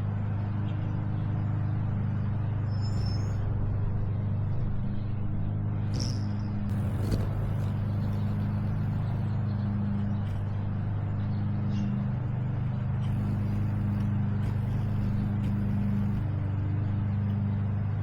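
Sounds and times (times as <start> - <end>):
low mechanical hum: 0.0 - 18.0
faint high chirp: 2.7 - 3.5.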